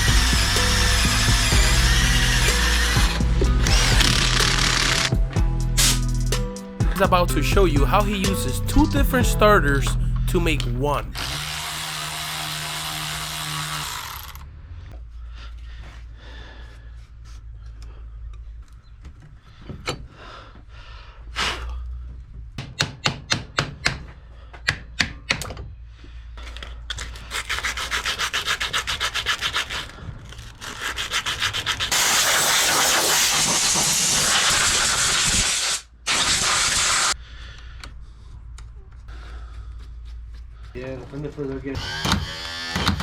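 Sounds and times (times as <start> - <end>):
power tool rasping on metal: 0.0 - 5.2, 11.2 - 14.4, 27.3 - 37.2, 41.8 - 43.0.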